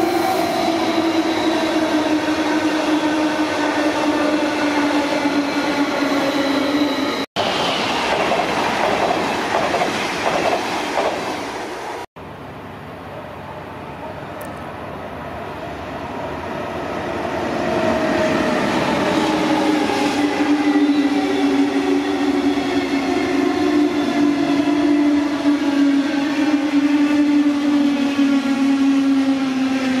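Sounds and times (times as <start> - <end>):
train humming whine: 0.0 - 30.0
train wheels rushing on rails: 7.4 - 12.0.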